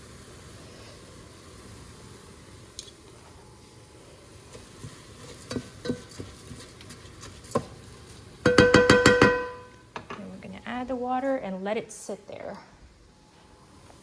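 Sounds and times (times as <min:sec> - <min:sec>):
utensil clinking on a cooking pot: 0:05.3 - 0:06.7, 0:08.4 - 0:10.2.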